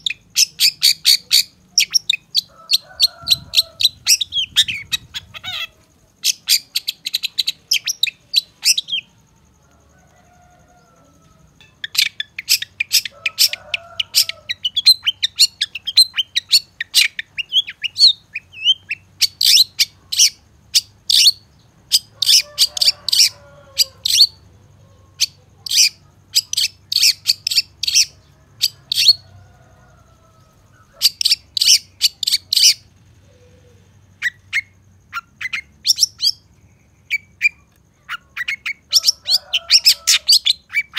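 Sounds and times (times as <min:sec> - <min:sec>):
bird sharp high chattering: 0:00.0 - 0:09.1, 0:30.9 - 0:32.9
faint lower bird calls: 0:00.0 - 0:40.9.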